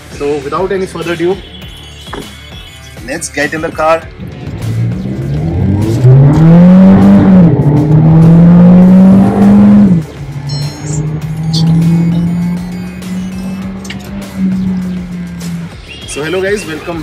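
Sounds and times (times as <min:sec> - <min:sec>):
car engine accelerating: 0:04.2 - 0:16.0.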